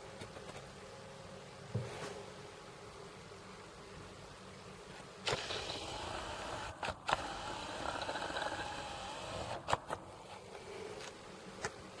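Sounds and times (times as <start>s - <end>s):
sharp clicks: 5.3s - 8.4s
small motor whirring: 5.3s - 10.0s.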